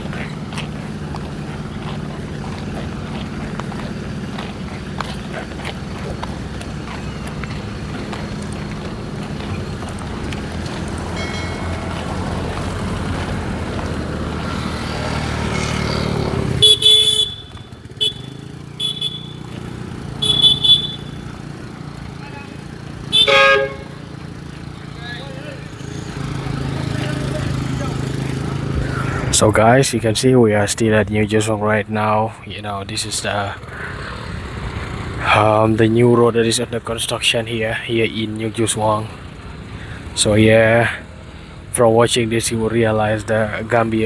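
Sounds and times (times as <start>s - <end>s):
vehicle engine running: 0.0s - 44.0s
vehicle horn toots: 16.5s - 21.4s, 22.1s - 24.3s.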